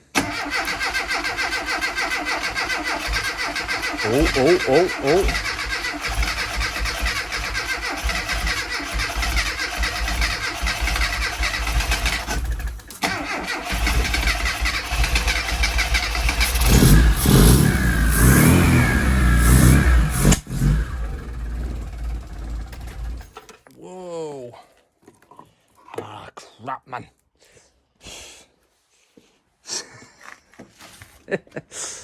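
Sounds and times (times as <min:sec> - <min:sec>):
engine starter cranking: 0:00.0 - 0:23.6
engine running unevenly: 0:16.2 - 0:23.3.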